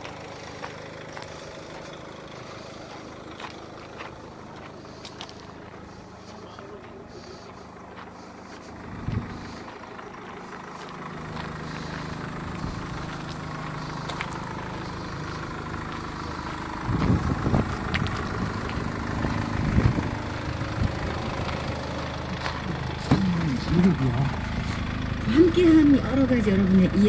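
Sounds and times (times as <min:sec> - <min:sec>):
footsteps on gravel: 0:00.0 - 0:25.0
car engine idling: 0:00.0 - 0:27.0.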